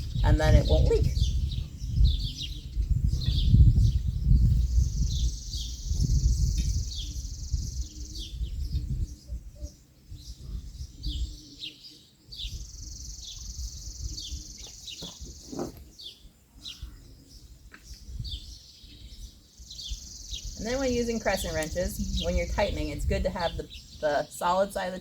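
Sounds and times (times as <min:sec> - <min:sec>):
wind rumble on microphone: 0:00.0 - 0:11.7, 0:12.3 - 0:25.0
birds chirping: 0:00.0 - 0:25.0.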